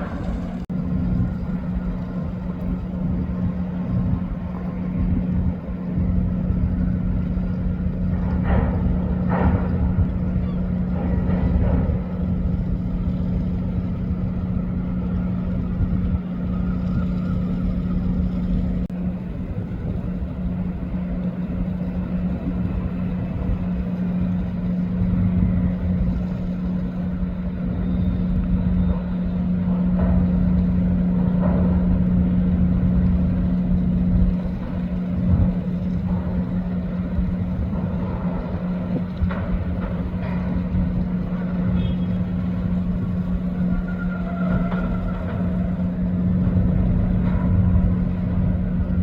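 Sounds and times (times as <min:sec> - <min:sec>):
motorbike engine humming: 0:00.0 - 0:04.4
wind rumble on microphone: 0:00.0 - 0:49.0.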